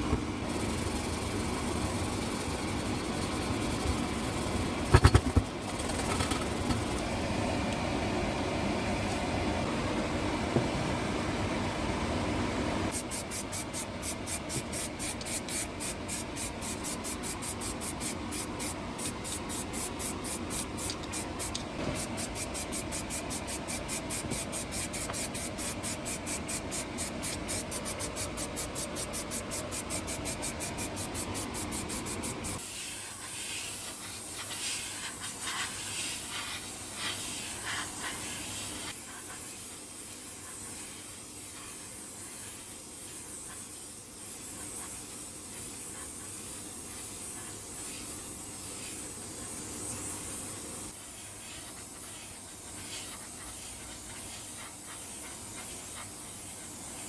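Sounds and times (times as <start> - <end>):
spray hiss: 12.9 - 57.0.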